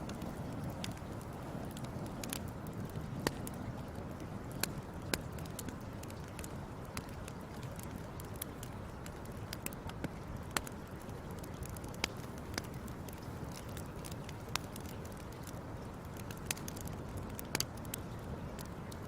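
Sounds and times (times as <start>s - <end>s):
low rush of burning: 0.0s - 6.1s
fire crackling and popping: 0.0s - 19.0s.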